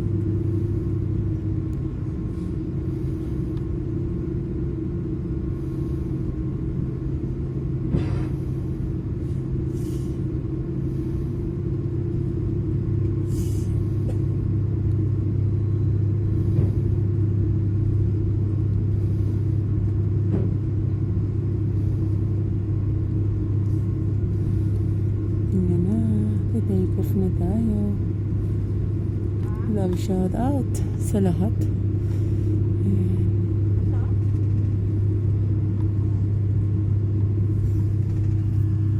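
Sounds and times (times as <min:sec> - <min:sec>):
airliner engine rumble in cabin: 0:00.0 - 0:38.9.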